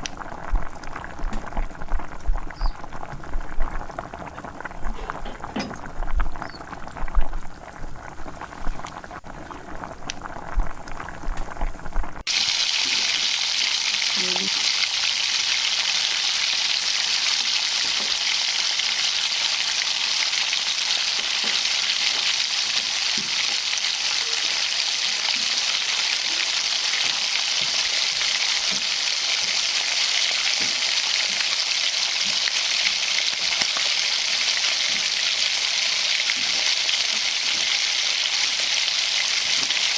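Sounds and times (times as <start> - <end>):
knocking and bubbling: 0.0 - 12.3
chicken deep-frying in oil: 0.0 - 39.9.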